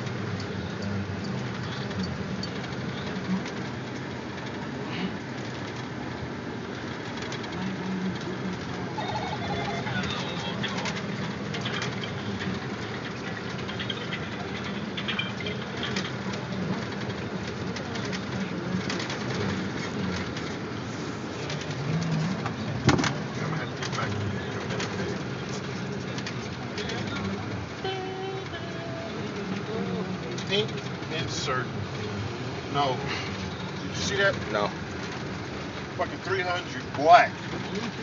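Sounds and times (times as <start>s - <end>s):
road noise: 0.0s - 38.0s
truck engine hum: 0.0s - 38.0s.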